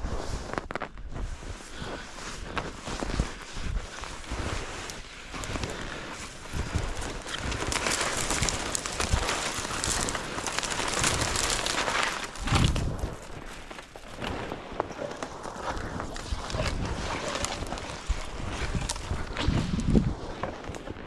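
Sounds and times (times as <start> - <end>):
brush rustling: 0.0 - 21.0
footsteps crunching in snow: 0.0 - 21.0
wind on microphone: 12.3 - 13.5, 14.2 - 21.0.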